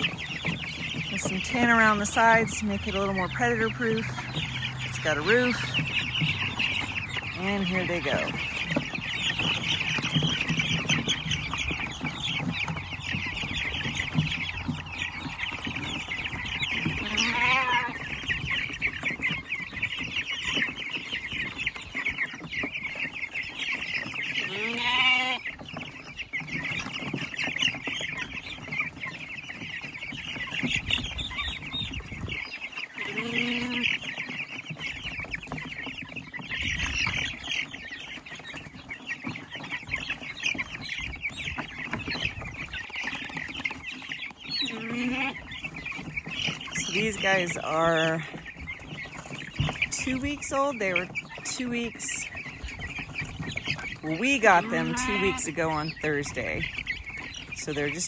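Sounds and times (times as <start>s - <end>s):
chicks peeping: 0.0s - 58.0s
louder animal calls: 13.7s - 18.3s, 24.4s - 25.5s, 32.9s - 34.0s, 44.6s - 45.4s, 54.4s - 56.0s.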